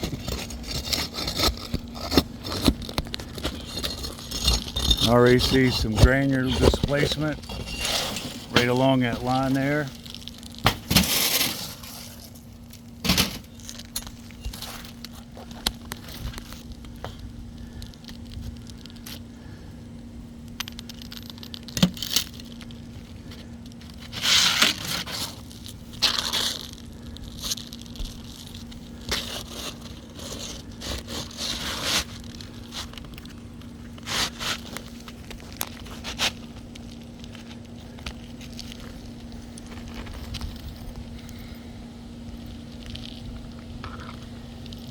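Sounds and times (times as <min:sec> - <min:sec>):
roof shingles scraping and tearing: 0:00.0 - 0:16.8, 0:22.0 - 0:40.5
steady low hum: 0:00.0 - 0:44.9.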